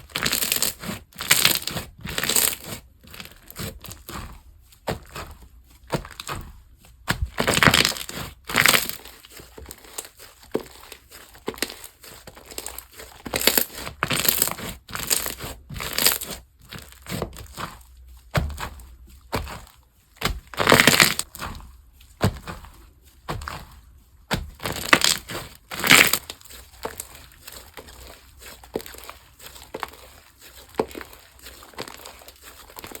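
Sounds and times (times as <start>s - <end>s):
slime squelching and popping: 4.9s - 30.0s.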